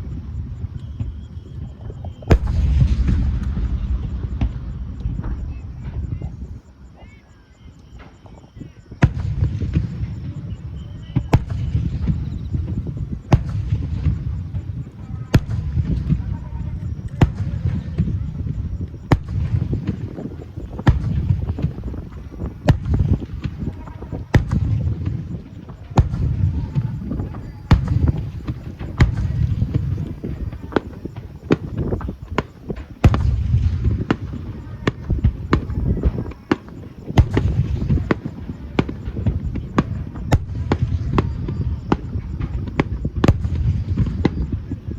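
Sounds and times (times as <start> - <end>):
continuous low rumble: 0.0 - 44.9
fireworks bangs: 0.0 - 44.9
low rumble of bursts and echoes: 2.1 - 6.7.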